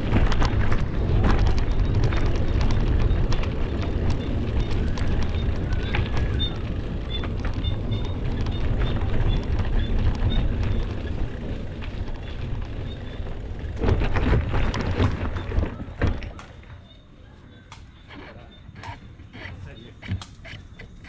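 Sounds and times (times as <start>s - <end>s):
wind buffeting microphone: 0.0s - 16.4s
bicycle clicks and rattles: 0.0s - 21.0s
road rumble: 0.0s - 21.0s.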